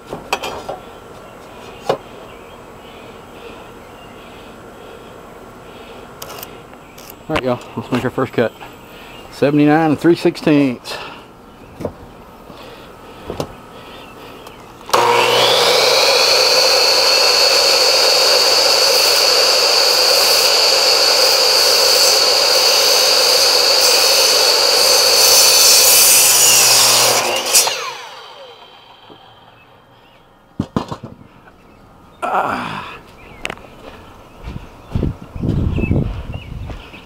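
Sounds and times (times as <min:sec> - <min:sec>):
electric saw cutting wood: 0:14.9 - 0:29.7.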